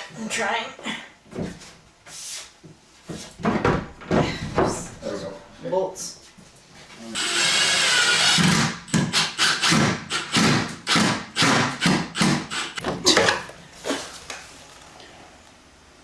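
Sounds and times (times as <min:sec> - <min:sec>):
power drill running: 0:07.1 - 0:12.8.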